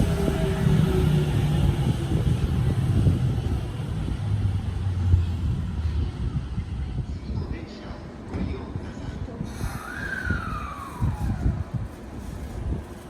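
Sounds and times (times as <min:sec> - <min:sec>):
electric train passing: 0:00.0 - 0:06.8.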